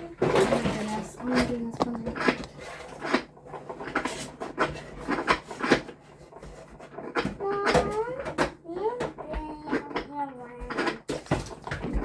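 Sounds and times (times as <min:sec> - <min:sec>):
objects knocking and clattering: 0:00.0 - 0:12.0
person speaking: 0:00.3 - 0:02.6.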